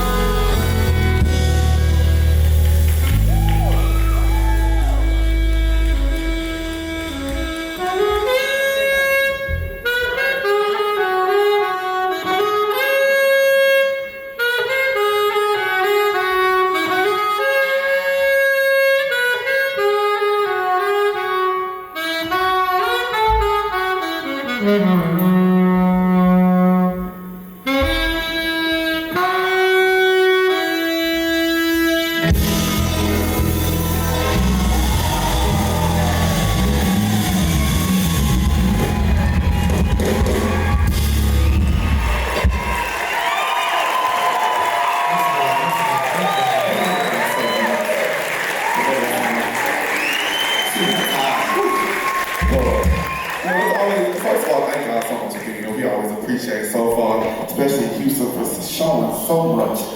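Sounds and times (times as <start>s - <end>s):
band with drums and bass: 0.0s - 12.4s, 31.0s - 43.3s, 50.6s - 53.6s
saxophone solo: 0.0s - 54.3s.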